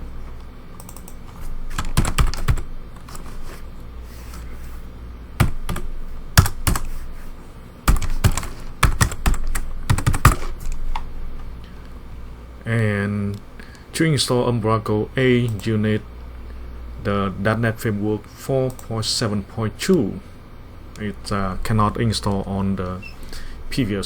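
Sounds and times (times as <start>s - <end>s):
steady low hum: 0.0s - 24.0s
typing on computer keyboard: 0.8s - 3.2s, 5.4s - 6.9s, 7.9s - 10.8s.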